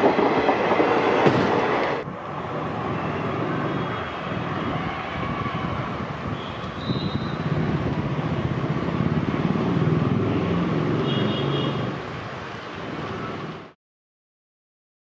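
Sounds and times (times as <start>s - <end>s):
train wheels rumbling on rails: 0.0s - 11.2s
high-pitched wheel squeals: 6.3s - 7.6s.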